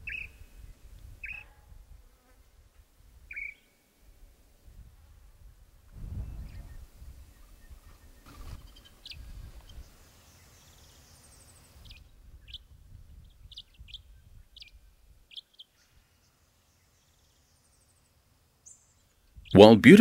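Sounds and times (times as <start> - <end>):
bird chirping: 0.0 - 0.5, 3.3 - 3.8, 6.2 - 19.7.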